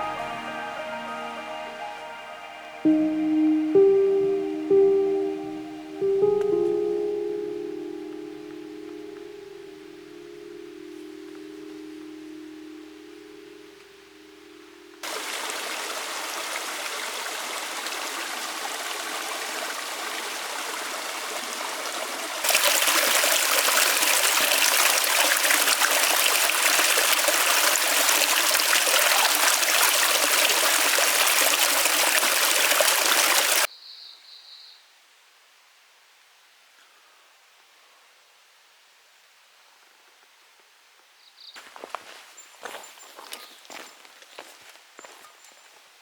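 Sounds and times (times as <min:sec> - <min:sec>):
mountain stream rushing: 0:15.0 - 0:33.7.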